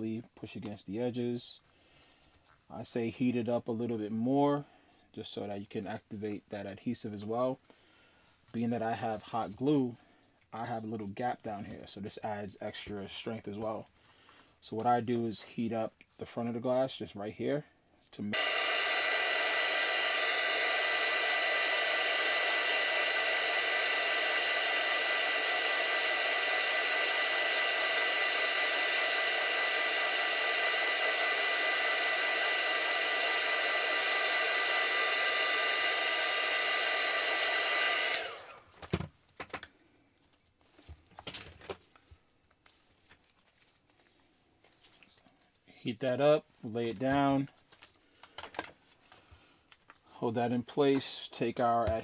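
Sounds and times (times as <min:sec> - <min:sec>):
heat gun blowing: 0:18.3 - 0:38.8.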